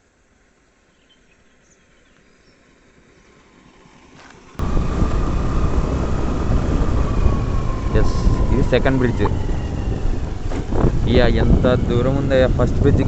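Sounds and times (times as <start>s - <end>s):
faint bird chirps: 0.8s - 3.3s
motorbike engine: 4.6s - 13.0s
wind noise: 4.6s - 13.0s.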